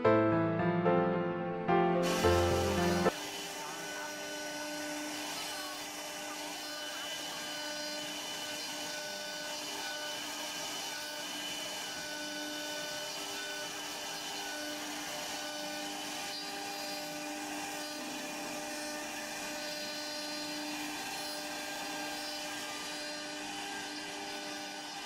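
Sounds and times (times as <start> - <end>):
machine hiss: 2.0 - 3.1
cnc router whine: 2.0 - 25.0.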